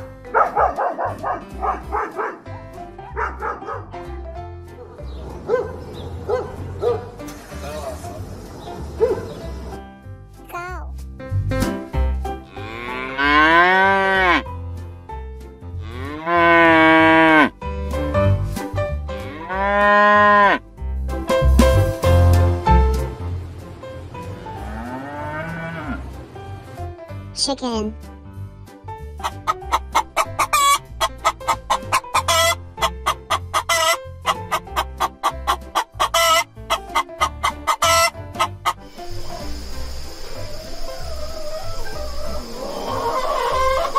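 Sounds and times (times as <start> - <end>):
cattle mooing: 12.5 - 14.5, 15.8 - 17.5, 19.2 - 20.6, 24.4 - 26.1
chicken squawking: 29.2 - 38.9, 40.3 - 43.9
chicken clucking: 29.2 - 43.9.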